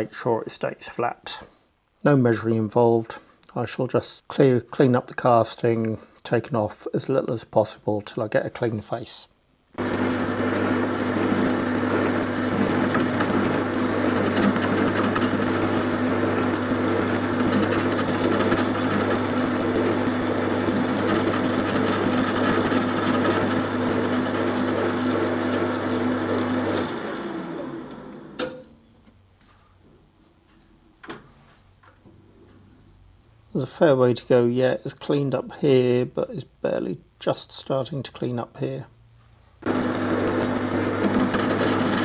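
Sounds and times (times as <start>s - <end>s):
lathe motor hum: 9.8s - 28.5s, 39.6s - 42.0s
lathe running down: 9.8s - 28.6s, 39.6s - 42.0s
lathe tool cutting metal: 9.8s - 28.7s, 39.7s - 42.0s
click: 26.7s - 26.9s.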